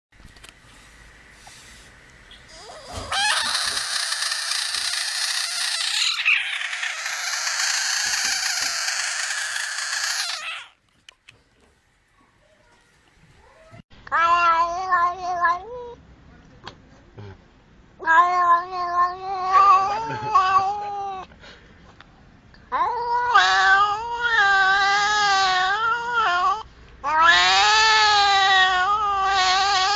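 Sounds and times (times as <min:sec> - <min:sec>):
loud animal calling: 0:02.5 - 0:10.8.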